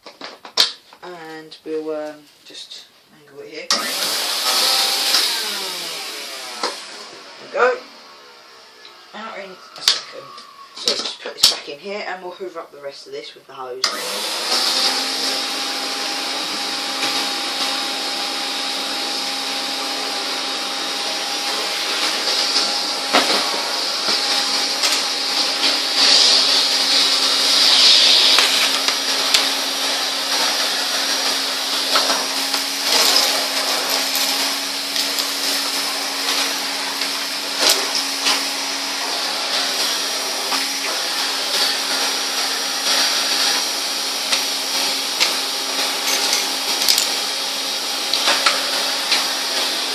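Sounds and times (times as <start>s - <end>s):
vacuum cleaner running: 3.6s - 11.7s, 13.8s - 49.9s
debris clicking in vacuum hose: 46.0s - 47.2s.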